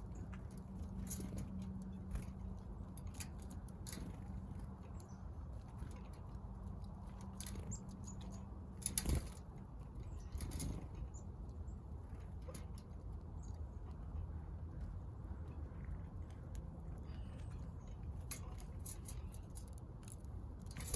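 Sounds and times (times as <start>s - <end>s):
steady low hum: 0.0s - 20.9s
wing flutter: 0.2s - 11.2s, 18.2s - 20.9s.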